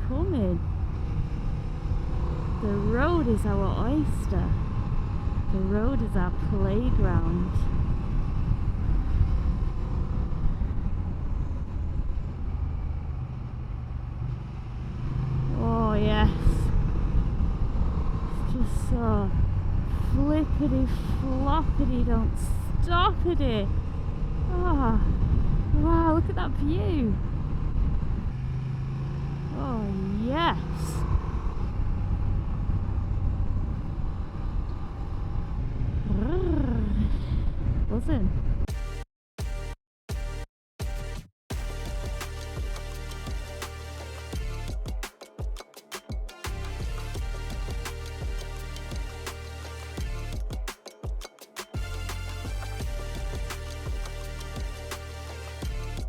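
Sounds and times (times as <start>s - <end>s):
wind noise on microphone: 0.0s - 13.5s, 14.9s - 28.4s, 35.0s - 38.7s
motorcycle engine running: 0.0s - 36.9s, 41.5s - 56.0s.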